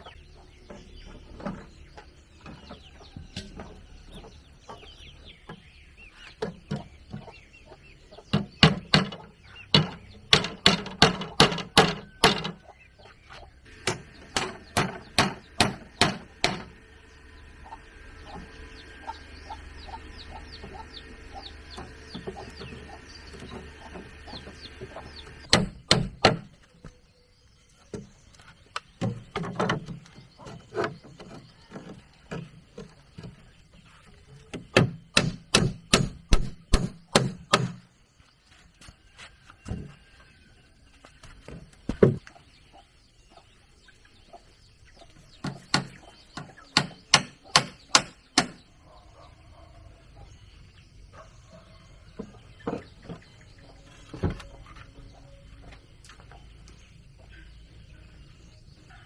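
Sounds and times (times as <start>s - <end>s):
chickens clucking: 0.0s - 25.6s, 37.9s - 59.0s
sharp blows on wood: 13.8s - 16.8s, 25.4s - 26.5s, 34.7s - 37.9s, 45.6s - 48.6s.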